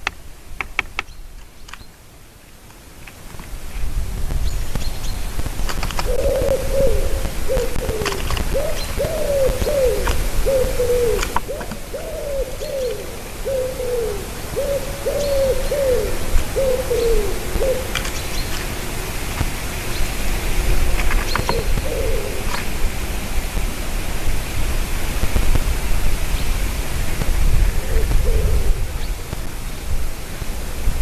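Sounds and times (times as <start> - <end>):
bird hooting: 6.0 - 19.0, 19.9 - 22.8, 27.8 - 29.3.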